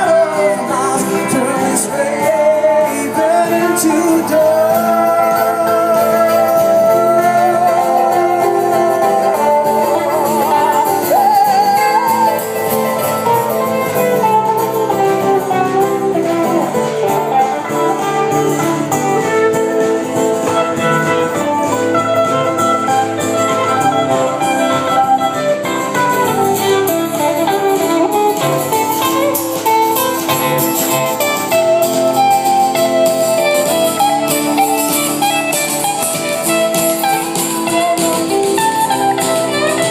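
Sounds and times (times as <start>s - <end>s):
folk band playing: 0.0s - 39.9s
guitar: 0.0s - 39.9s.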